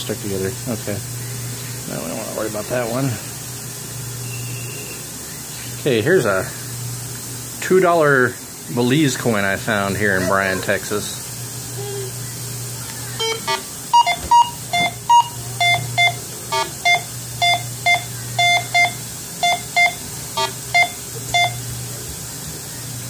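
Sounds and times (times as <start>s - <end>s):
steady low hum: 0.0s - 23.0s
metal detector beeps: 13.2s - 21.6s.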